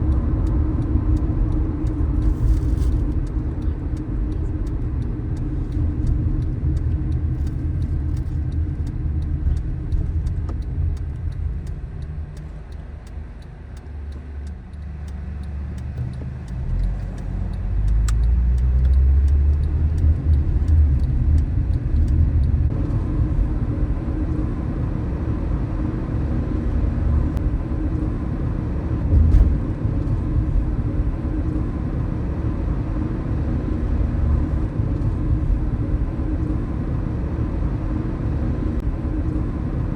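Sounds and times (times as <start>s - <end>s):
car engine and tyre rumble: 0.0s - 39.9s
low thump: 29.1s - 29.7s.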